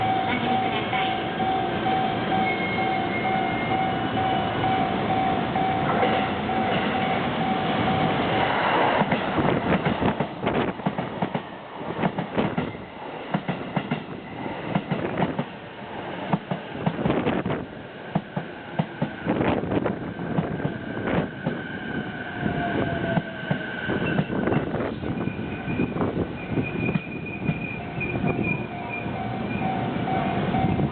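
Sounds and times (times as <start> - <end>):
steady high tone: 0.0 - 8.9
electric train slowing: 0.0 - 30.9.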